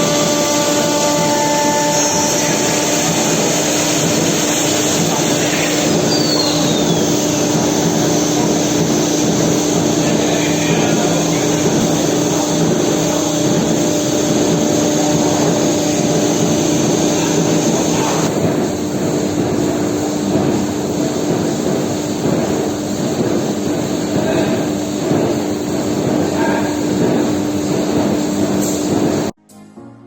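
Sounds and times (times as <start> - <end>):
router machine humming: 0.0 - 18.3.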